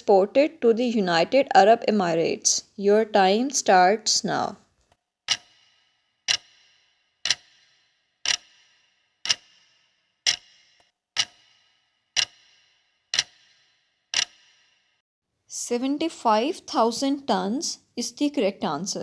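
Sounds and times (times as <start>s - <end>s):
clock ticking with metallic ring: 5.3s - 14.8s.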